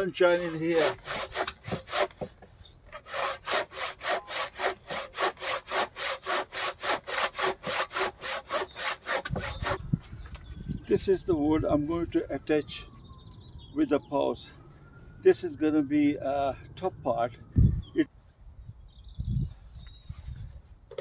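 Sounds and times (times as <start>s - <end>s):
handsaw cutting wood: 0.0s - 9.8s.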